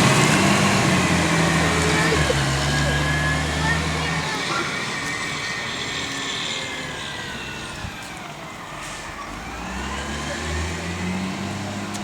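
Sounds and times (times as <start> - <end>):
garbage truck engine whining: 0.0 - 12.0.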